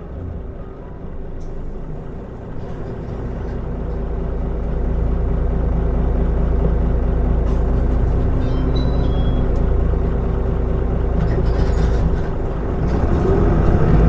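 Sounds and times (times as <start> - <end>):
bus diesel engine accelerating: 0.0 - 14.0.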